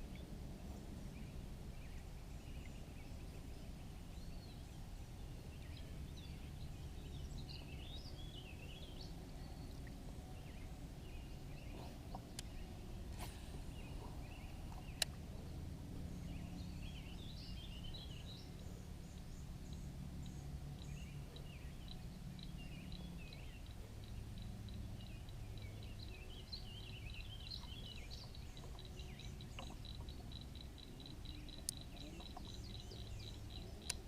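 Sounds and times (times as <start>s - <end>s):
songbirds chirping: 0.0s - 34.0s
steady low rumble: 0.0s - 34.0s
rapid high ticks: 28.1s - 32.6s, 33.2s - 34.0s.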